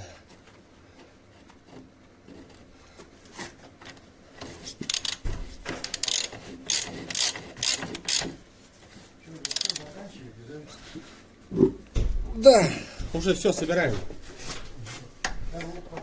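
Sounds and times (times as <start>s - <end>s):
ratchet wrench clicking: 4.8s - 5.2s, 5.8s - 8.3s, 9.4s - 9.9s.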